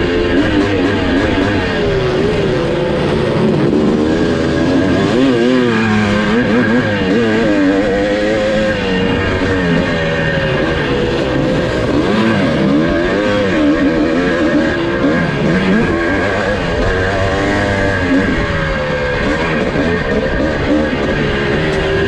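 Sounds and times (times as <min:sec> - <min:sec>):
two-stroke motorcycle engine racing: 0:00.0 - 0:22.0.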